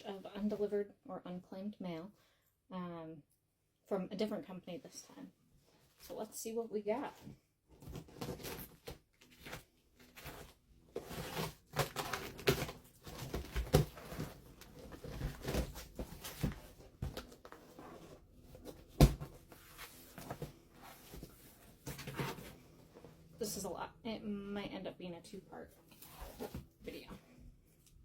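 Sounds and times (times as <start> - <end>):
packaging rustling and tearing: 7.8 - 18.9.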